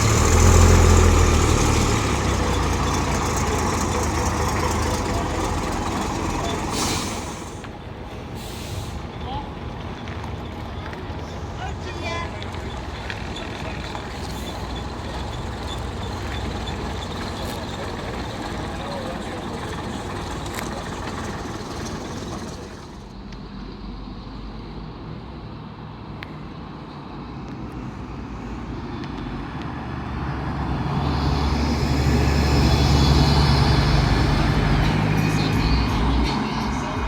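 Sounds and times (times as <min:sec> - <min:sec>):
background voices: 0:00.0 - 0:07.8, 0:10.6 - 0:23.1, 0:31.1 - 0:37.0
bus diesel engine running: 0:00.0 - 0:24.8, 0:30.6 - 0:37.0.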